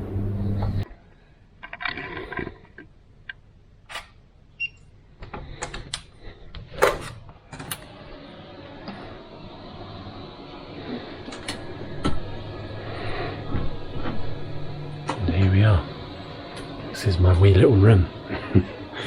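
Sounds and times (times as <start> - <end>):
low steady hum: 0.0 - 1.6.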